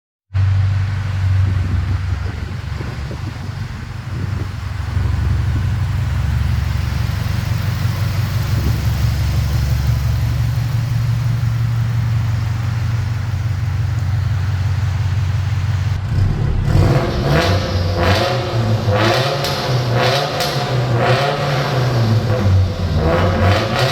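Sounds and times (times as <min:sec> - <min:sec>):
car engine revving in a tunnel: 0:00.3 - 0:23.9
car exhaust droning: 0:00.3 - 0:23.9.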